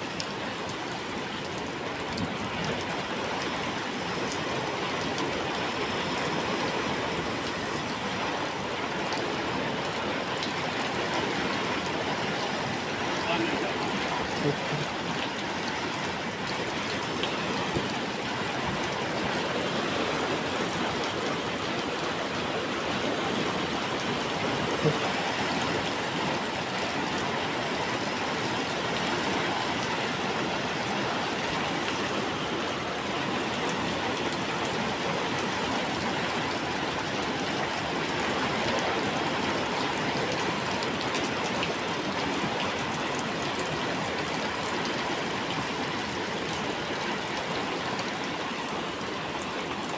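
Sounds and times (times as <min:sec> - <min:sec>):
steady rain falling: 0:00.0 - 0:49.9.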